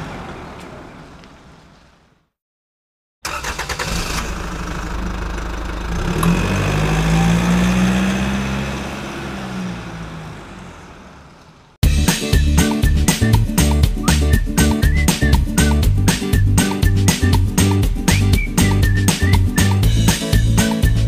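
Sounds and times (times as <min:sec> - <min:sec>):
vehicle engine starting and humming: 0:03.2 - 0:11.8.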